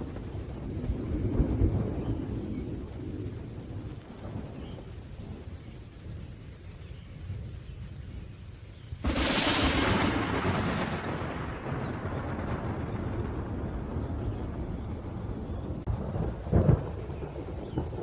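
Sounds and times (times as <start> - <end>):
distant thunder rumbling: 0.0 - 8.3, 9.0 - 18.0
sharp thunderclap: 9.0 - 18.0.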